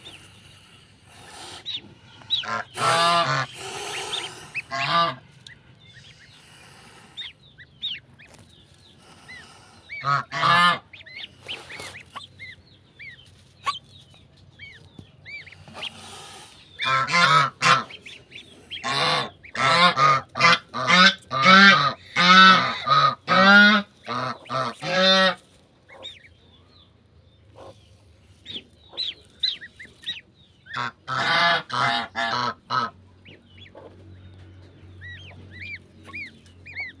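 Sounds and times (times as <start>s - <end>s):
goslings peeping: 0.0s - 37.0s
goose honking: 1.1s - 6.4s, 9.3s - 12.6s, 16.8s - 26.3s, 28.9s - 33.9s.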